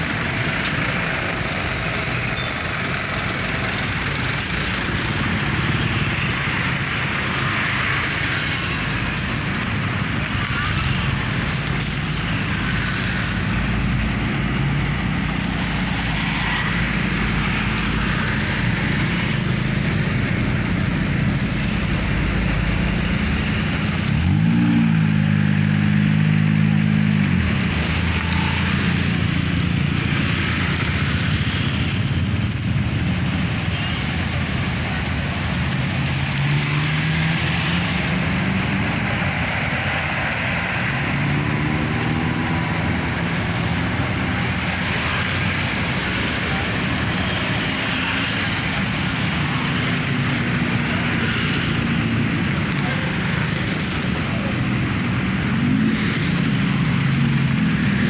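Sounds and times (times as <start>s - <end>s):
dense road traffic: 0.0s - 58.0s
diesel engines running: 0.0s - 58.0s
engine revving: 3.3s - 33.5s, 35.3s - 58.0s.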